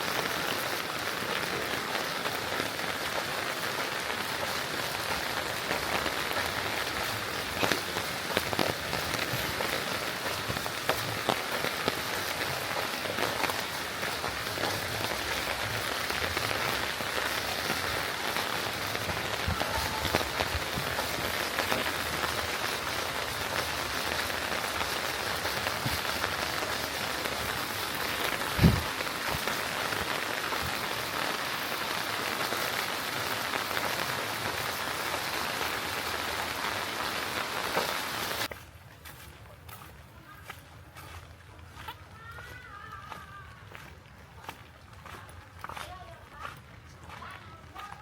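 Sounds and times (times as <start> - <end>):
rain pattering: 0.0 - 39.1, 39.7 - 48.0
dull low thump: 28.5 - 28.9.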